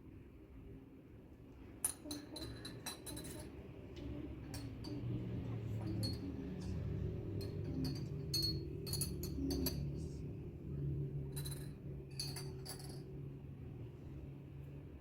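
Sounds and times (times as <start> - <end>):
light clicks and clinks: 1.8 - 3.6, 11.4 - 13.1
low hum: 3.3 - 15.0.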